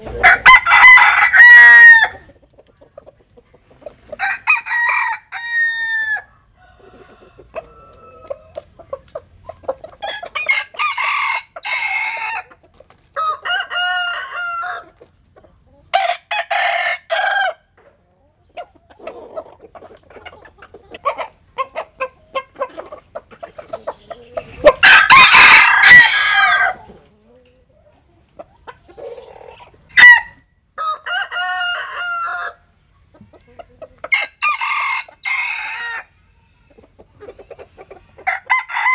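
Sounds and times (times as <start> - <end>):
roosters crowing: 0.0 - 2.4, 4.0 - 8.7, 9.9 - 15.0, 15.9 - 17.7, 24.1 - 27.0, 28.9 - 32.8, 34.0 - 36.2, 38.1 - 38.9
chicken clucking: 0.0 - 38.9.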